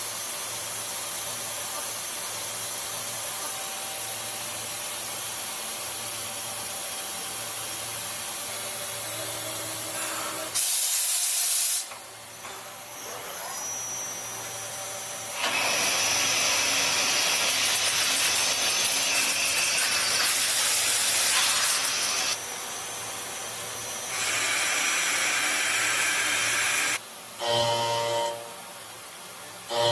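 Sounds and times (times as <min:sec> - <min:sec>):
hissing of cutting and coolant: 0:15.4 - 0:22.4, 0:24.0 - 0:27.0.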